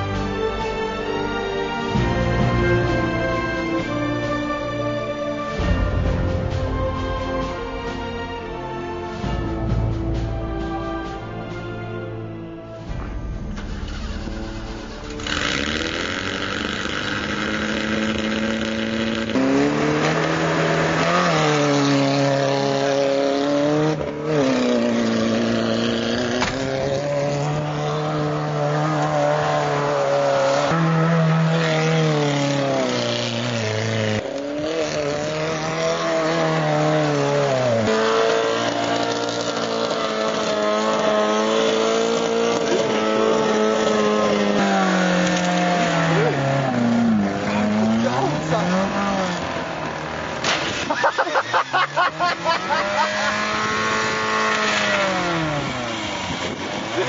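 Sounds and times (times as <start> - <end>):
car engine revving hard: 13.6 - 57.0.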